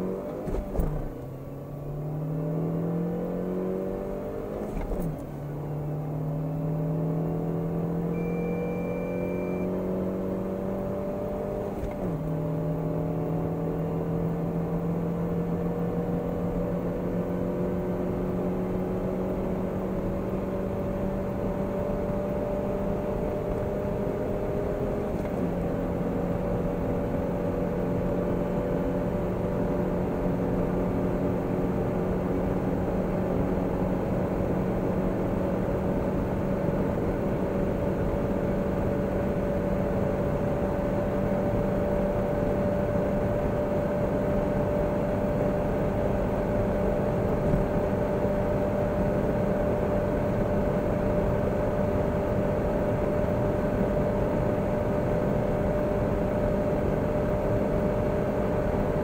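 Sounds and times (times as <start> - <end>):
car engine accelerating through gears: 0.0 - 59.0
short steady beep: 8.0 - 10.0.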